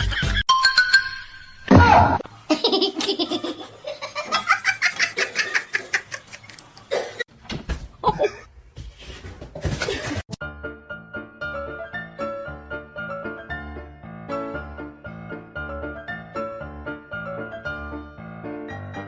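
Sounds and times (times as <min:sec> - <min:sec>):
person laughing hard: 0:08.0 - 0:08.5.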